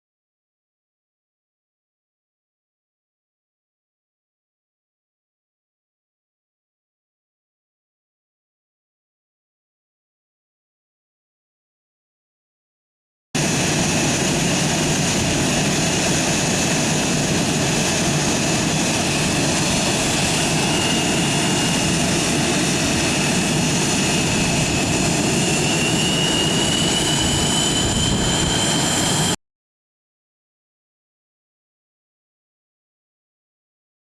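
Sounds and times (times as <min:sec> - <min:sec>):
jet engines rushing and whining: 0:13.4 - 0:29.4.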